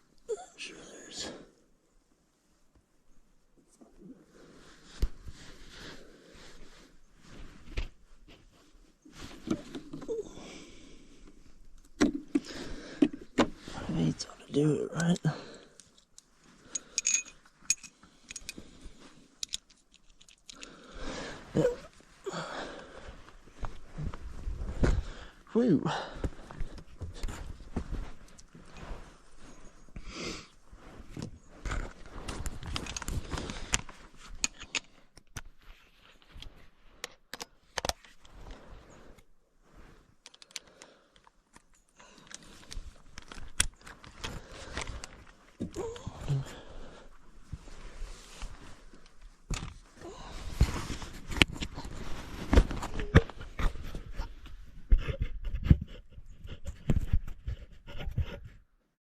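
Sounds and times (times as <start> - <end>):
tools and parts clicking and knocking: 15.8 - 18.6, 19.4 - 20.7, 40.3 - 42.4
knocks and clinks: 16.8 - 18.6
rustling: 37.8 - 58.1.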